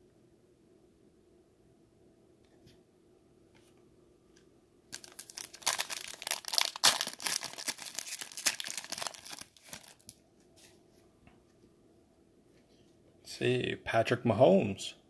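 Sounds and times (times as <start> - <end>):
foil wrapper tearing and crinkling: 4.9 - 10.2.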